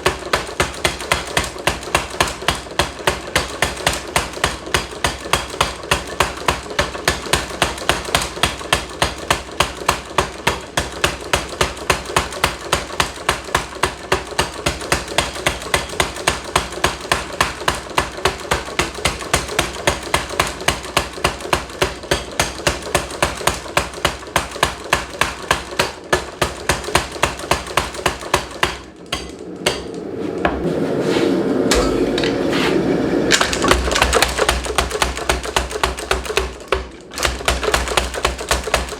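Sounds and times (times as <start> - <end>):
power hammer striking hot steel: 0.0 - 30.6, 31.7 - 38.9
steady rushing noise with low hum: 29.1 - 33.4.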